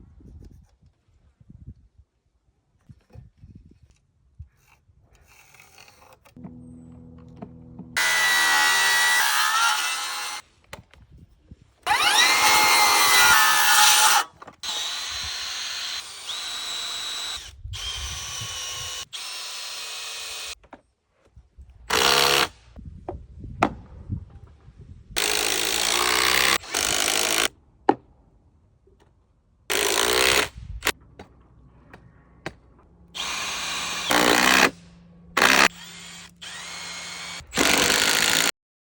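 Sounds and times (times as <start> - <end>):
power drill drilling wood: 8.0 - 10.4, 11.8 - 20.6, 21.9 - 22.5, 25.2 - 27.5, 29.7 - 30.5, 33.2 - 34.8, 35.4 - 38.5.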